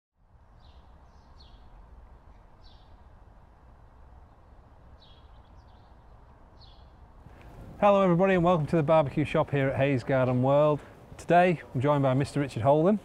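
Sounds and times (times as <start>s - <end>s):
steady low rumble: 0.2s - 11.4s
small bird chirping: 0.6s - 3.0s, 5.0s - 7.0s.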